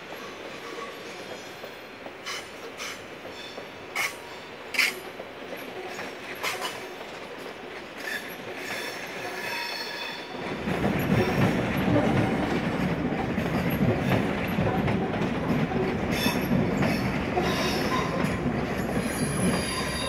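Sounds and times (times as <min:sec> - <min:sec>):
railway cars rumbling: 0:00.0 - 0:20.0
train wheel clicks over track: 0:01.3 - 0:20.0
high wheel squeal: 0:19.0 - 0:20.0.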